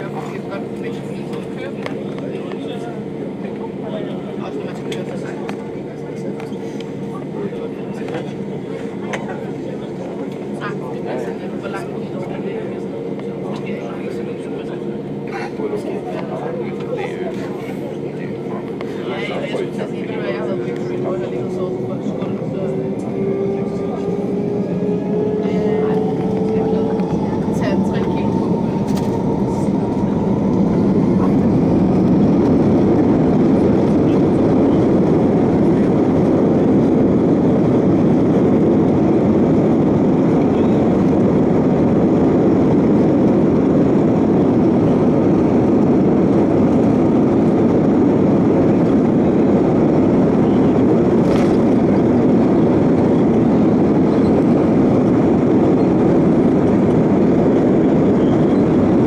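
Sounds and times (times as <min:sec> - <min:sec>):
aircraft engines and rushing air: 0:00.0 - 0:59.0.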